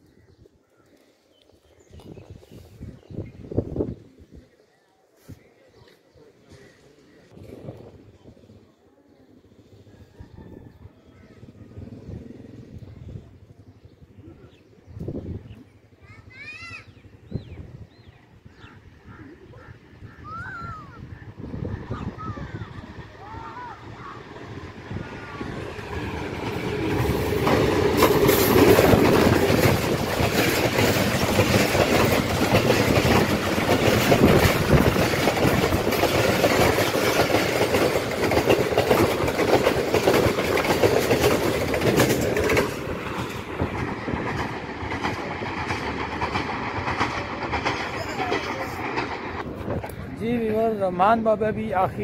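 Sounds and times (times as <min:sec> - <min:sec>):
diesel locomotive passing: 0:07.3 - 0:52.0
wheels rushing on rail: 0:07.3 - 0:52.0
clickety-clack over rail joints: 0:25.6 - 0:50.8.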